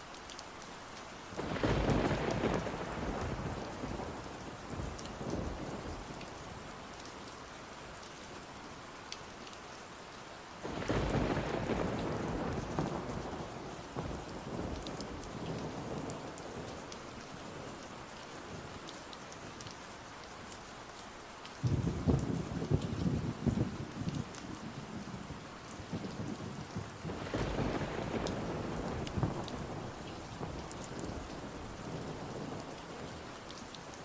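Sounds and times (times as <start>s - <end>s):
steady rain: 0.0s - 34.0s
thunder rumbling: 1.4s - 6.2s, 10.7s - 16.8s, 21.6s - 33.1s.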